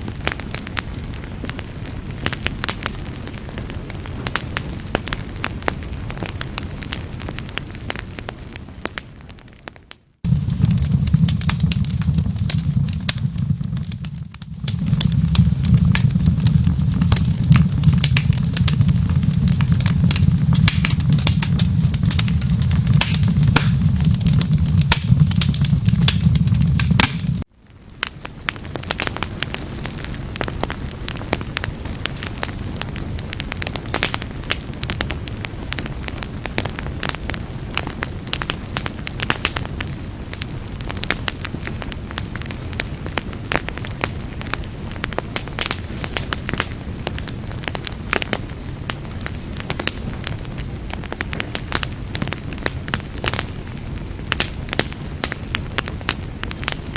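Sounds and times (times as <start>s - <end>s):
wood fire crackling: 0.0s - 56.9s
heavy low rumble: 10.3s - 27.5s.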